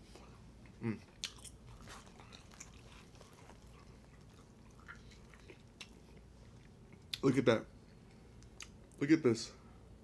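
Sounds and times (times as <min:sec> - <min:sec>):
faint chewing: 0:00.1 - 0:07.3.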